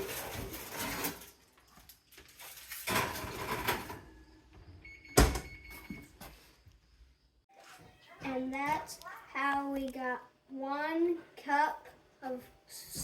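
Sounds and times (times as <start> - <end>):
pan scraping and rattling: 0.0 - 1.5, 2.4 - 4.1.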